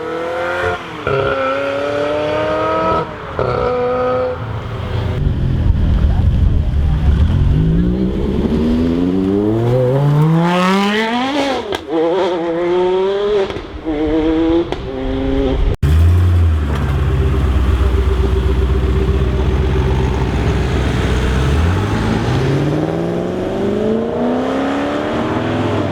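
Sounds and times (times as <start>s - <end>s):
sports car engine accelerating: 0.0s - 25.9s
engine running at low note: 4.9s - 9.5s, 15.6s - 22.9s.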